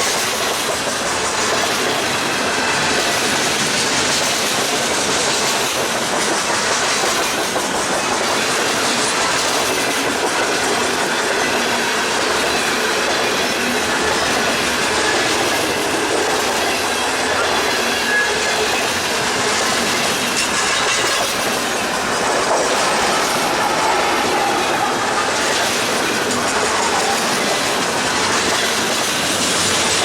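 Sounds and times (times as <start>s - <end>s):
freight train wheels rumbling on rails: 0.0s - 30.0s
faint wheel squeal: 17.3s - 18.9s.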